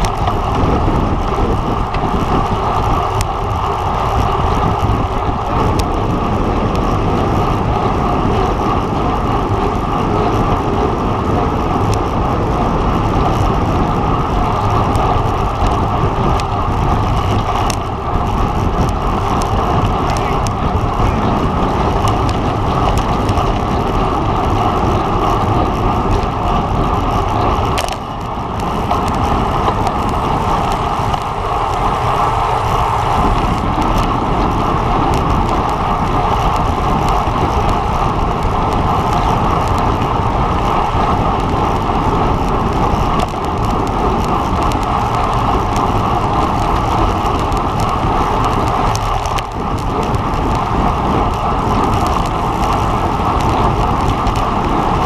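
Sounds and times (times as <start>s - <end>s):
bicycle road noise: 0.0s - 55.0s
wind rushing over microphone: 0.0s - 55.0s.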